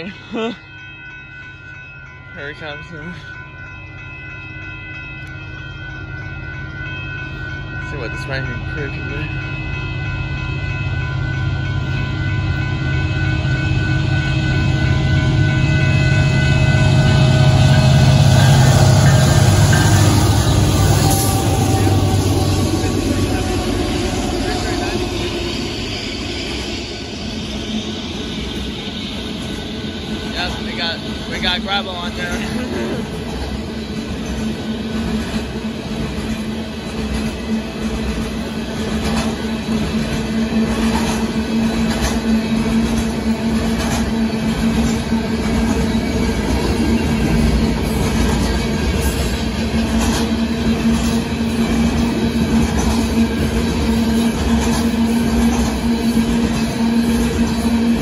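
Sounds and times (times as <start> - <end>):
crossing signal ringing: 0.0 - 38.6
diesel train engine rumble: 0.0 - 58.0.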